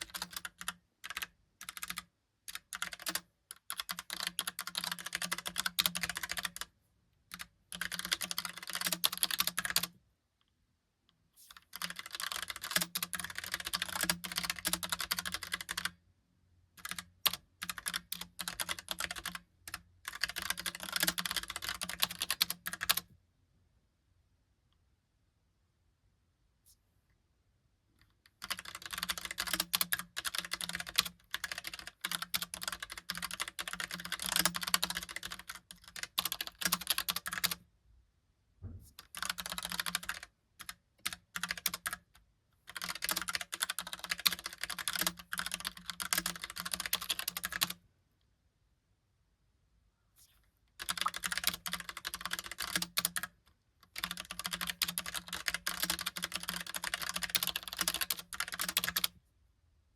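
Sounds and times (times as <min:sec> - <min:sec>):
mechanical keyboard typing: 0:00.0 - 0:06.7, 0:07.3 - 0:09.9, 0:11.6 - 0:16.0, 0:16.8 - 0:23.1, 0:28.3 - 0:37.6, 0:39.0 - 0:42.1, 0:42.7 - 0:47.8, 0:50.8 - 0:59.2.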